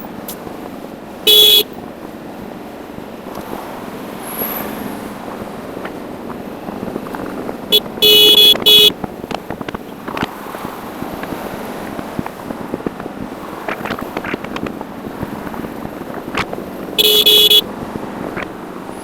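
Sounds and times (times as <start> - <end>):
road and wind noise: 0.0 - 19.0
vehicle horn beeping: 1.2 - 1.8, 7.7 - 9.0, 17.0 - 17.7.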